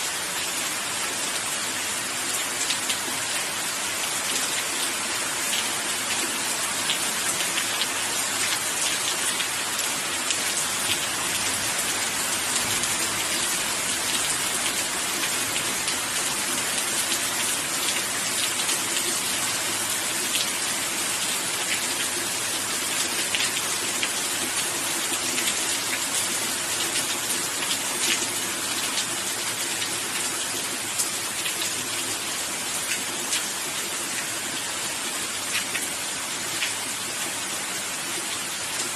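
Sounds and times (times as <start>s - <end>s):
steady rain on a surface: 0.0s - 38.9s.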